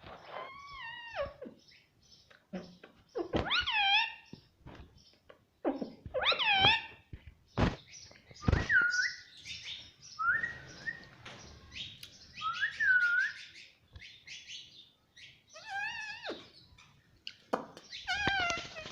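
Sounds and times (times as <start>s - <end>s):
parrot whistled calls: 12.4s - 13.6s
parrot scratchy chattering: 18.1s - 18.9s.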